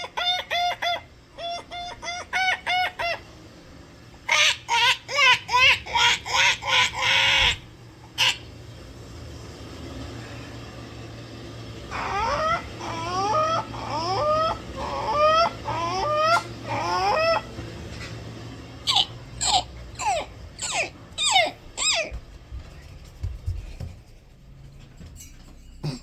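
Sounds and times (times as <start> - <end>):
person imitating bird calls: 11.9 - 17.5, 18.8 - 22.2.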